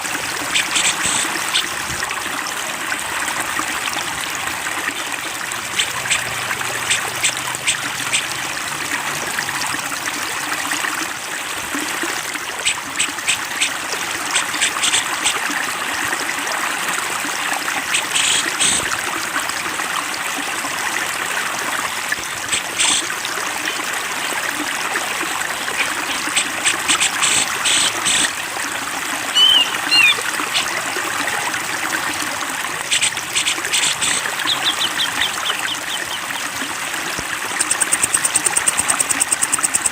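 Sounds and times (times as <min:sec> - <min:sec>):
stream water flowing: 0:00.0 - 0:39.9
bird chirping and trilling: 0:00.5 - 0:01.7, 0:05.8 - 0:08.3, 0:29.3 - 0:30.8, 0:32.9 - 0:36.4, 0:37.6 - 0:39.9
whistled bird call: 0:29.3 - 0:30.7.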